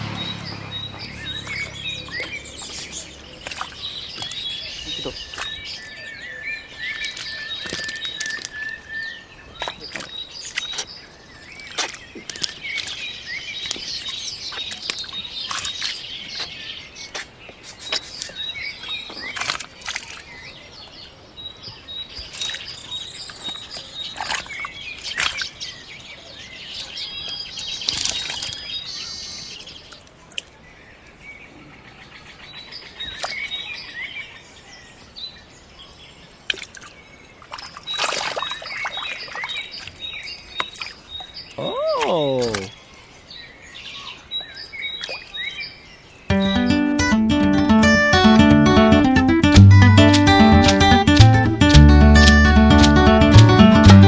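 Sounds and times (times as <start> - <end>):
small birds chirping: 0.0 - 51.2
sharp clicks and taps: 46.3 - 54.0.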